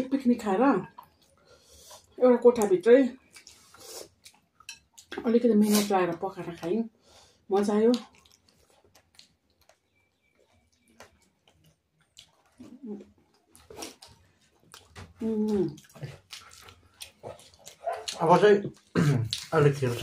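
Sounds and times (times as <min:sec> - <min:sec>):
wet chewing and lip smacks: 0:00.8 - 0:05.2, 0:07.6 - 0:19.5.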